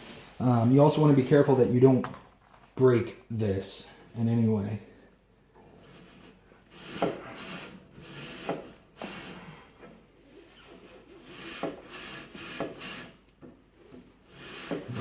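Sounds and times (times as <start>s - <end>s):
brush rasping on metal coils: 5.7s - 9.5s, 11.1s - 13.2s, 14.2s - 15.0s.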